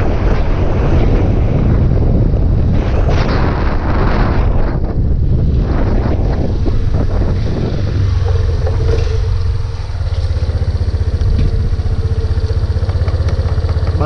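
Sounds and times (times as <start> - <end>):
wind noise on microphone: 0.0 - 14.0
motorcycle engine idling: 6.7 - 14.0.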